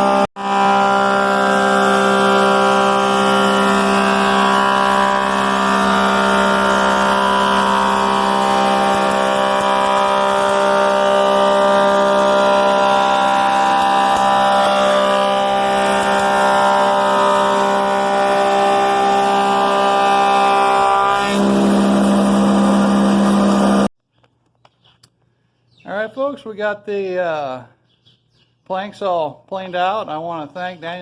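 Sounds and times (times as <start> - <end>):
thickness planer running: 0.0 - 23.9.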